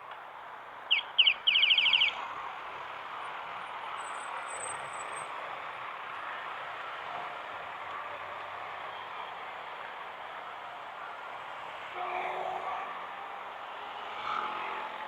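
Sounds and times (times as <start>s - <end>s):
bird chirping: 0.9s - 2.2s.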